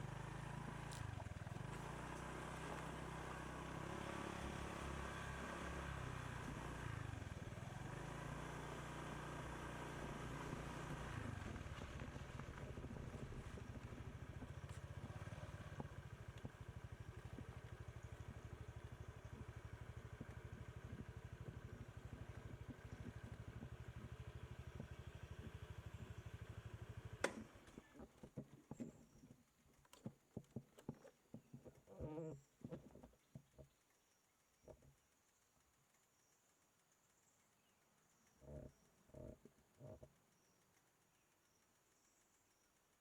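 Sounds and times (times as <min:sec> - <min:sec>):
motorbike engine running: 0:00.0 - 0:29.3
light taps and knocks: 0:28.0 - 0:33.7.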